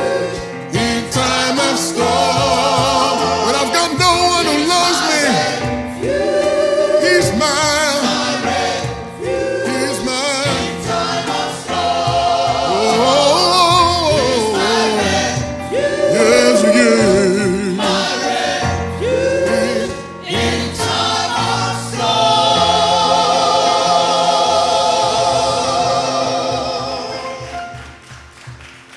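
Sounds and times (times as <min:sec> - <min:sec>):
gospel choir singing: 0:00.0 - 0:28.9.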